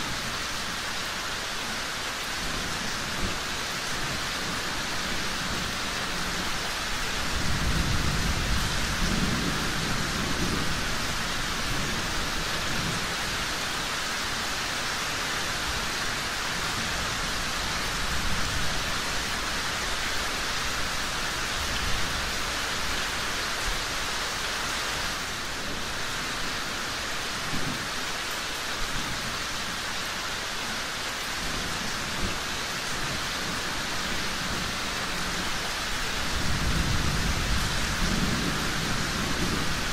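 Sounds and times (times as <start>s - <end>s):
steady rain pouring: 0.0s - 39.9s
thunder rumbling: 36.2s - 39.9s.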